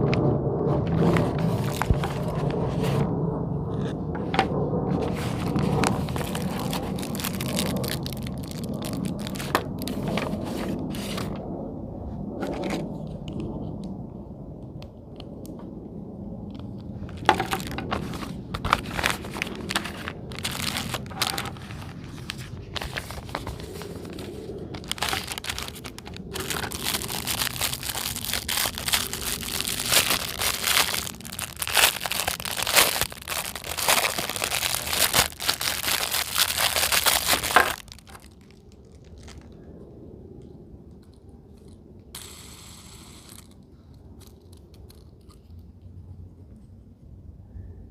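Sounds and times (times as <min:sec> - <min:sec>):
plastic packaging crinkling: 0:01.0 - 0:02.5, 0:05.0 - 0:11.4, 0:16.5 - 0:39.6.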